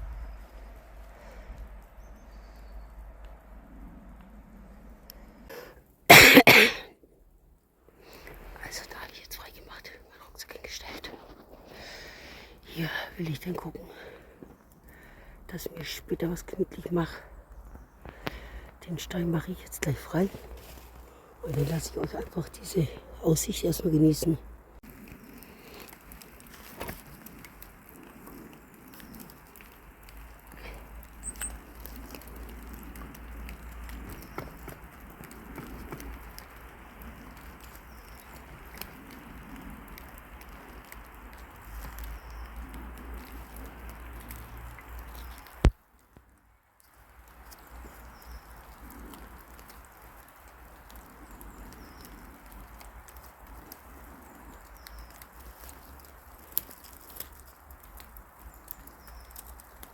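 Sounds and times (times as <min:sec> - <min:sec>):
wind rumbling on microphone: 0:00.0 - 0:05.5, 0:24.4 - 0:59.9
light ticks and patter: 0:00.0 - 0:06.0, 0:07.4 - 0:59.9.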